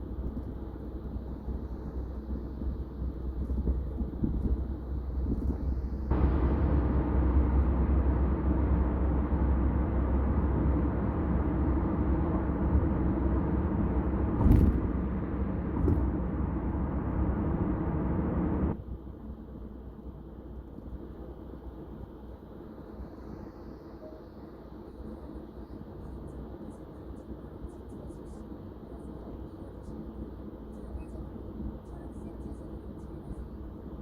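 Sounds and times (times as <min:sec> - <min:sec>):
road and tyre rumble: 0:00.0 - 0:34.0
thump: 0:14.4 - 0:14.9.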